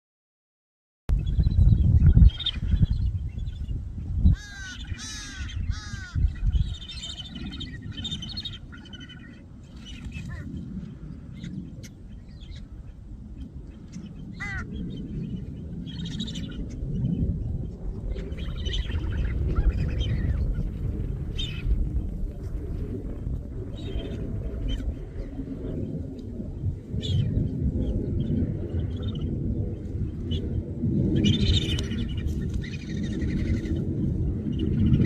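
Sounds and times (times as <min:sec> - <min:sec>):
low rumble of wind: 0:01.1 - 0:35.0
small birds chirping: 0:01.2 - 0:17.3
crows cawing: 0:04.4 - 0:06.3, 0:14.4 - 0:14.7.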